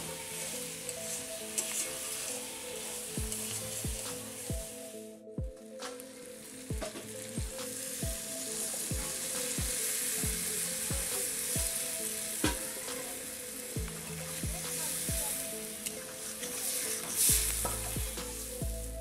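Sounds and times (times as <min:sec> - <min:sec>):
music with low drum beat: 0:03.2 - 0:13.1, 0:13.7 - 0:15.6, 0:17.1 - 0:19.0
curry sizzling in a pan: 0:06.0 - 0:18.6.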